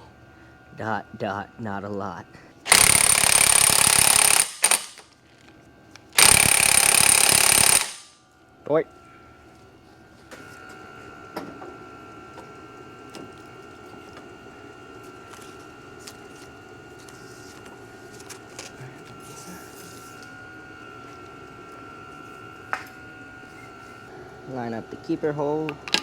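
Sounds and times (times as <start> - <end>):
electric motor whining: 2.7 - 5.0, 6.2 - 8.1.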